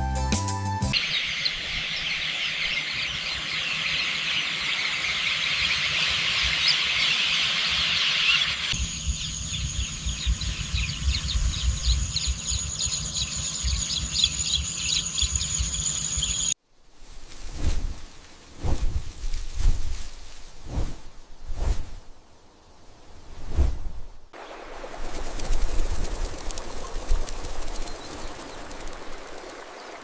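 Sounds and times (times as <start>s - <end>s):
high-pitched chirping chorus: 1.0s - 16.6s.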